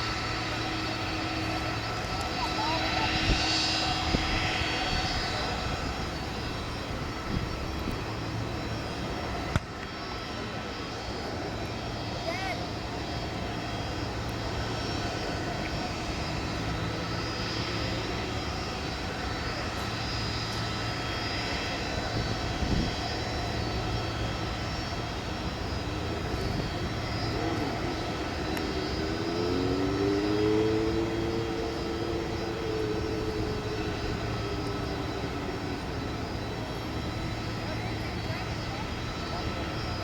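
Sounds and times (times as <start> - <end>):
jet engines rumbling: 0.0 - 40.0
whining engine tone: 0.0 - 40.0.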